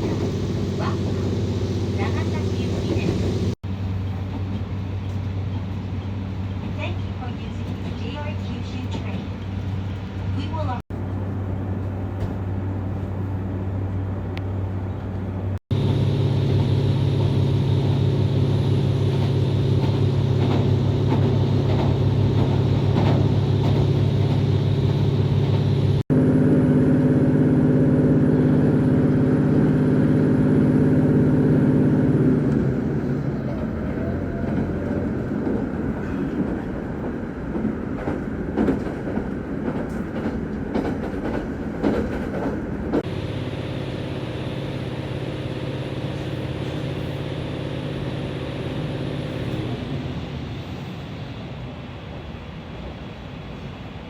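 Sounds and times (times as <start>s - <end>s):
train drone with pitched tones: 0.0s - 6.2s, 12.8s - 37.1s, 39.7s - 52.2s
train rumble with knocks: 0.0s - 54.0s.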